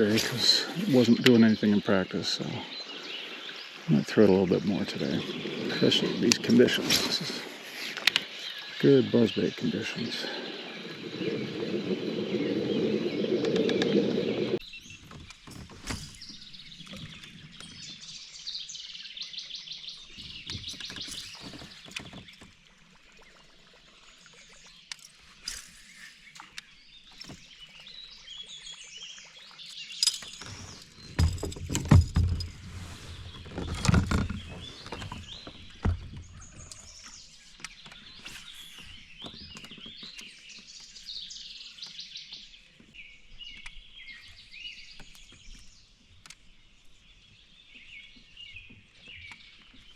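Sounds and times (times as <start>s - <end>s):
birds chirping and singing: 0.0s - 22.5s, 25.9s - 49.9s
low thumps and knocks: 30.2s - 32.7s.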